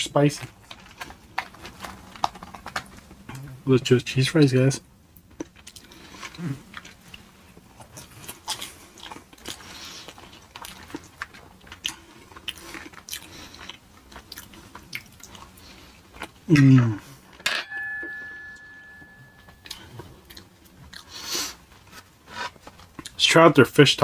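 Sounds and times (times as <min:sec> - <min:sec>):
chewing with wet mouth sounds: 0:05.2 - 0:16.5, 0:19.5 - 0:23.2
faint steady tone: 0:17.5 - 0:20.4.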